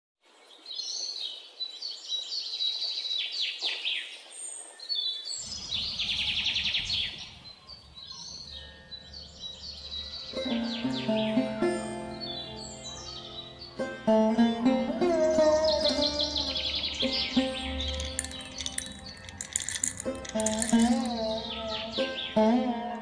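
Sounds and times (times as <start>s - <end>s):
birds chirping and trilling: 0.4s - 23.0s
music: 8.4s - 23.0s.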